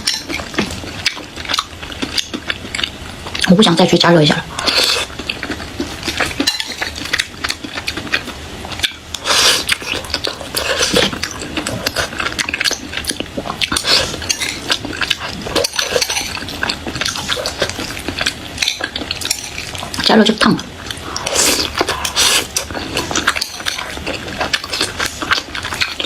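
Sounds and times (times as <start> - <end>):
utensils clicking and scraping dish: 6.0 - 8.2, 10.1 - 20.2.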